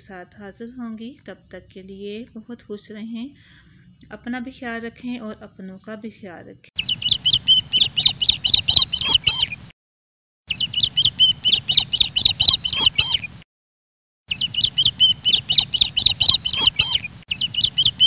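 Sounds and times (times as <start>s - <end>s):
recorded bird chirping: 6.7s - 9.7s, 10.5s - 13.4s, 14.3s - 18.0s.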